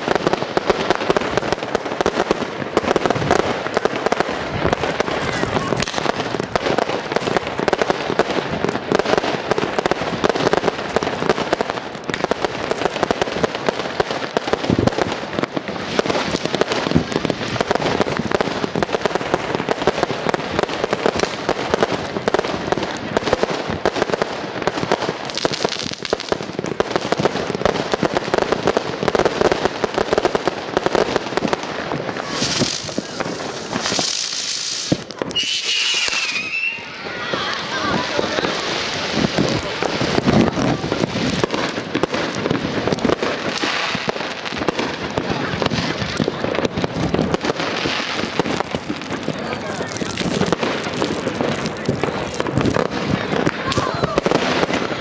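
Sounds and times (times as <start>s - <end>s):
fireworks hissing rush: 0.0s - 55.0s
fireworks pops and crackles: 0.0s - 55.0s.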